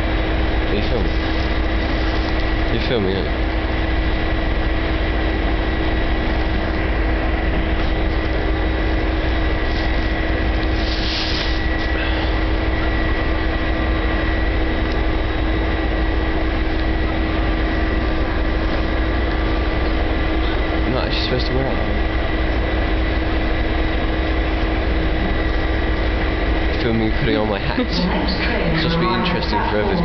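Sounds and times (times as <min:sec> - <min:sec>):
constant whine: 0:00.0 - 0:30.0
train engine rumble: 0:00.0 - 0:30.0
short hiss: 0:10.8 - 0:11.6.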